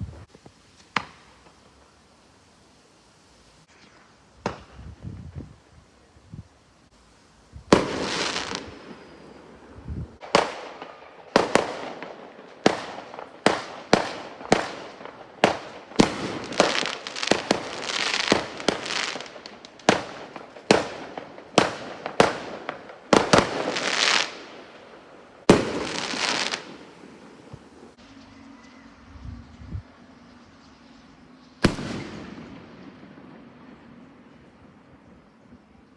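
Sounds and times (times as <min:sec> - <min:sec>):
fireworks hissing crackle: 0:00.0 - 0:35.9
fireworks banging: 0:07.7 - 0:28.0, 0:31.6 - 0:34.3.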